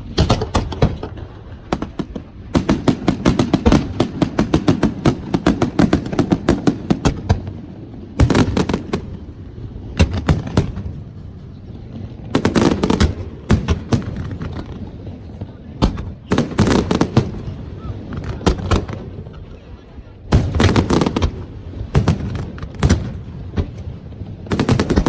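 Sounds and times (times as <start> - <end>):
fireworks bangs: 0.0 - 25.0.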